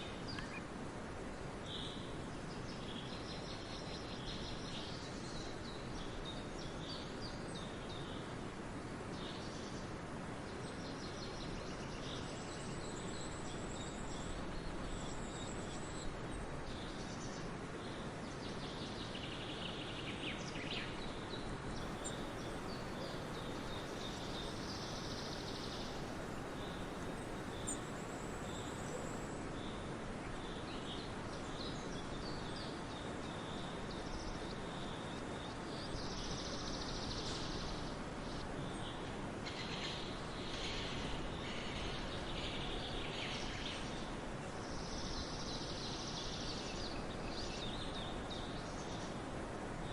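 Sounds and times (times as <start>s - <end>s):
birds chirping: 21.8s - 29.3s
steady rushing noise: 21.8s - 29.3s.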